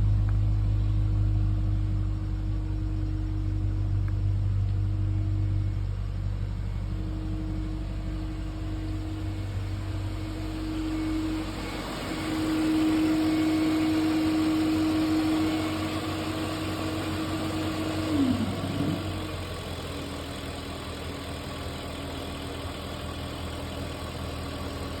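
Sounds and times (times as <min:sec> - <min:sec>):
car engine idling: 0:00.0 - 0:25.0
steady tone: 0:06.7 - 0:19.7.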